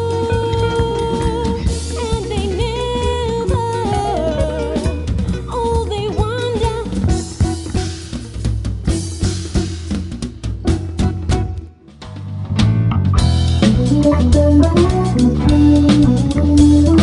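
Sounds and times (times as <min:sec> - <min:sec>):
lead melody with pitch bends: 0:00.0 - 0:06.3, 0:12.6 - 0:17.0
bass guitar: 0:00.0 - 0:17.0
drum kit: 0:00.0 - 0:17.0.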